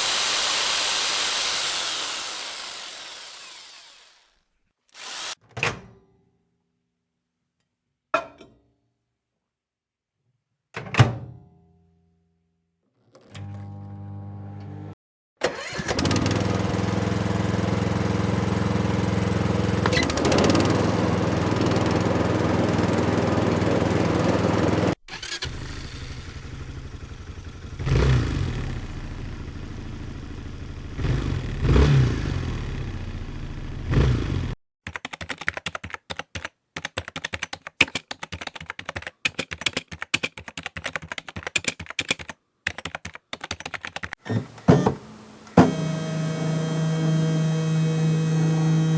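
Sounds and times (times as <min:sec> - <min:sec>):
idling engine revving: 0:00.0 - 0:04.2, 0:16.1 - 0:34.6
rapid irregular clicking: 0:34.9 - 0:44.6.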